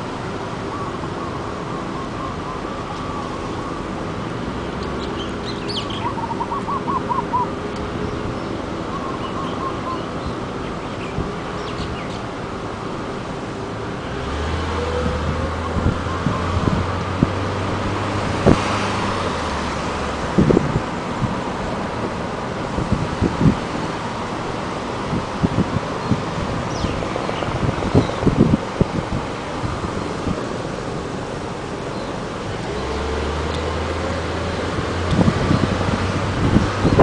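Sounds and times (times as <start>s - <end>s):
moving car hum: 0.0s - 37.0s
birds chirping: 4.8s - 12.4s, 26.0s - 28.4s.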